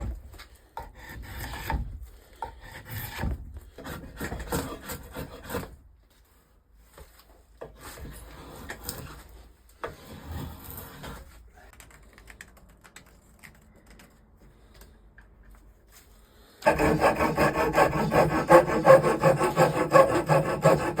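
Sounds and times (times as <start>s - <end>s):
hand tool shaving wood: 16.6s - 21.0s.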